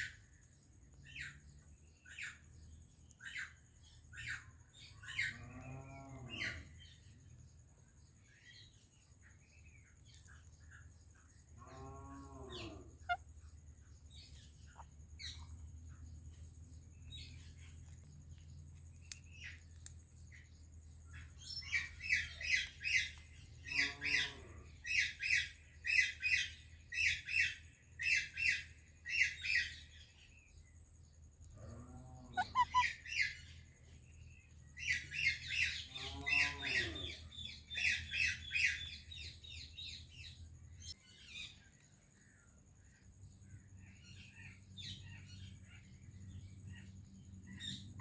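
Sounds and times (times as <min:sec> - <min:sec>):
parrot chirping: 0:32.3 - 0:33.5
low parrot call bending pitch: 0:32.4 - 0:32.9
parrot squawking harshly: 0:32.4 - 0:32.9.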